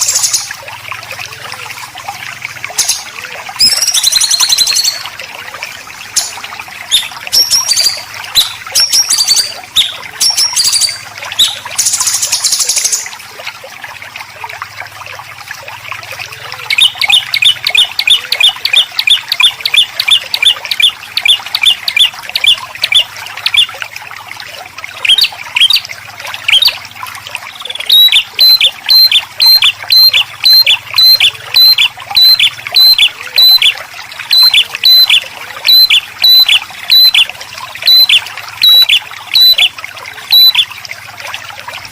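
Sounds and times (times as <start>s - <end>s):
trickle of water: 0.0s - 41.9s
songbird calls: 2.7s - 5.2s, 6.2s - 13.1s, 16.3s - 23.8s, 24.9s - 25.9s, 26.5s - 26.8s, 27.5s - 40.7s.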